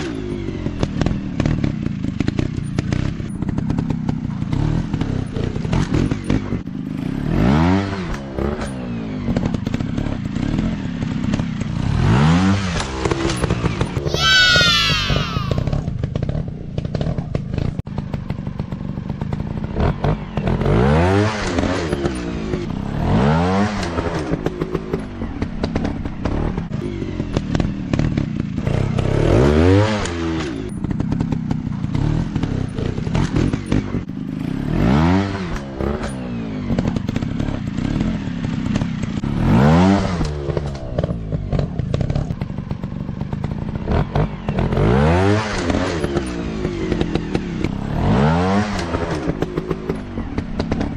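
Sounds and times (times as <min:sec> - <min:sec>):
dirt bike engine revving: 0:43.9 - 0:50.9.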